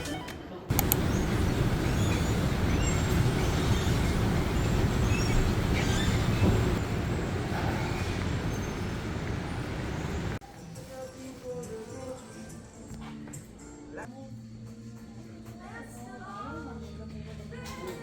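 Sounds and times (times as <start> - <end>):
low rumble of vehicle noise: 0.7 - 10.4.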